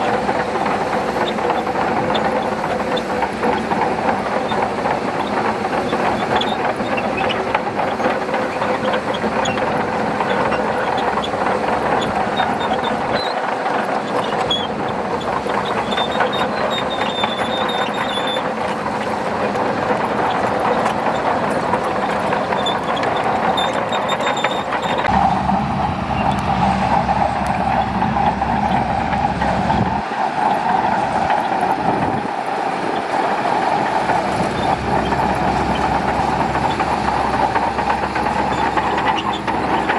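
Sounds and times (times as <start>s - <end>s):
bulldozer diesel engine: 0.0s - 39.9s
steel tracks clattering: 0.0s - 39.9s
high-pitched track squeals: 23.5s - 39.9s.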